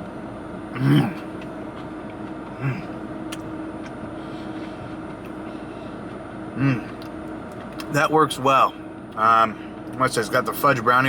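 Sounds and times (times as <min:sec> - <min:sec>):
steady low hum: 0:00.0 - 0:11.0
person humming mm: 0:02.6 - 0:03.0, 0:06.6 - 0:07.0.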